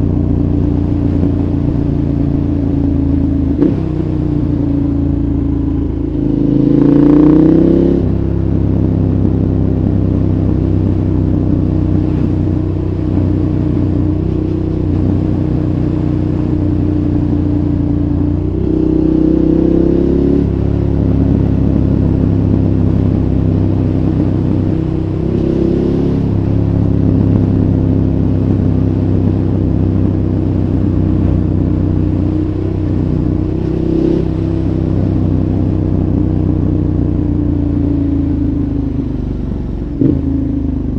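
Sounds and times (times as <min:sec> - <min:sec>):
motorcycle engine revving: 0:00.0 - 0:40.9
wind and road noise: 0:00.0 - 0:40.9.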